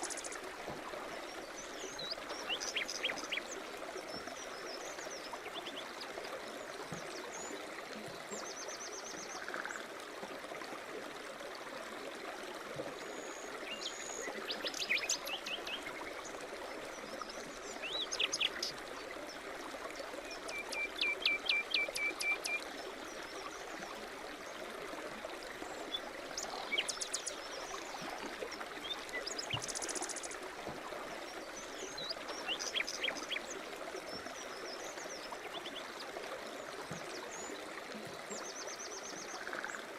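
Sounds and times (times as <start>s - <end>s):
stream running: 0.0s - 39.9s
songbirds singing: 1.3s - 6.0s, 13.1s - 19.4s, 25.5s - 30.4s, 31.2s - 37.6s.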